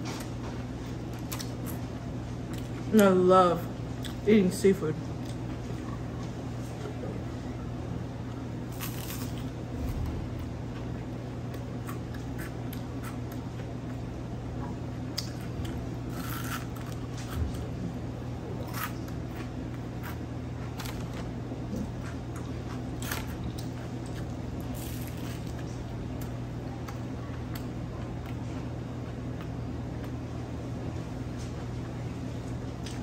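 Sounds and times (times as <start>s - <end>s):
steady low hum: 0.0s - 33.0s
crunchy chewing of fried fish: 8.6s - 10.2s, 10.8s - 30.4s.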